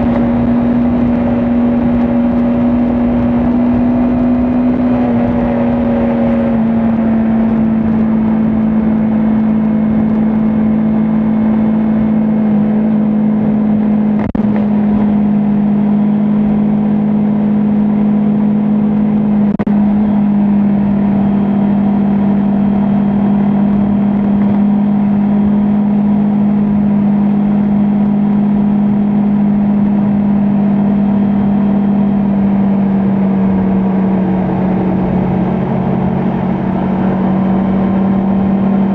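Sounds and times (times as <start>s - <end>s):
motorcycle engine cruising: 0.0s - 38.9s
wind and road noise: 0.0s - 38.9s.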